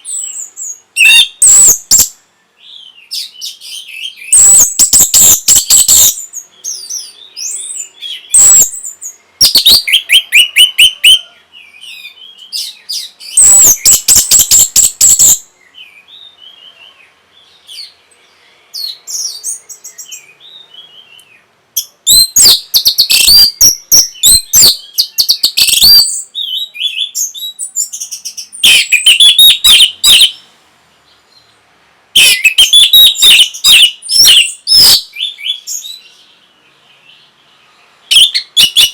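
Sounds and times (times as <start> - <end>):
thrush singing whistled phrases: 0.0 - 2.2, 2.9 - 16.7, 18.8 - 30.4, 32.2 - 36.0, 38.1 - 38.9.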